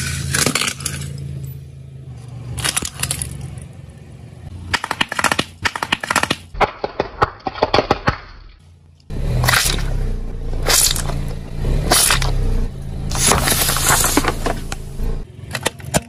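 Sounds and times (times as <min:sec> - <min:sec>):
tyre crushing brittle object: 0:00.0 - 0:01.2, 0:06.5 - 0:08.5, 0:09.4 - 0:09.9, 0:10.6 - 0:12.4
car engine running low: 0:09.0 - 0:15.4.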